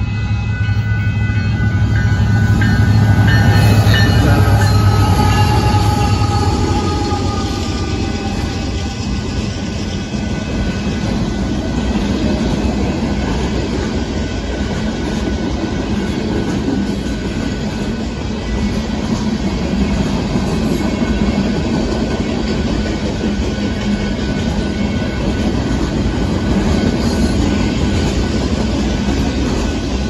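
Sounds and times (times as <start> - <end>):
freight train wheels rumbling on rails: 0.0 - 30.0.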